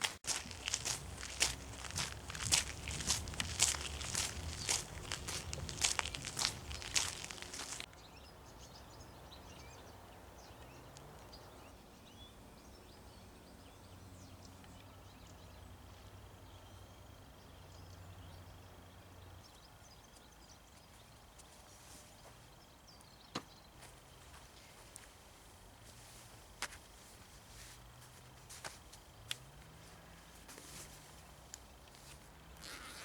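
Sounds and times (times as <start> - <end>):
footsteps crunching in snow: 0.0 - 7.9.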